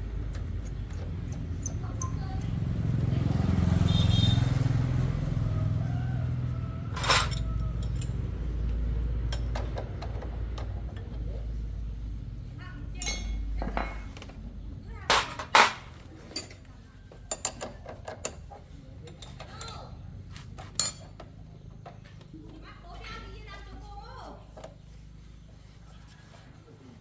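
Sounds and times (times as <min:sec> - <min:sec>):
motorcycle engine rumble: 0:00.0 - 0:27.0
metallic clinks and knocks: 0:06.9 - 0:08.4, 0:09.2 - 0:11.2, 0:12.9 - 0:14.1, 0:20.6 - 0:21.4.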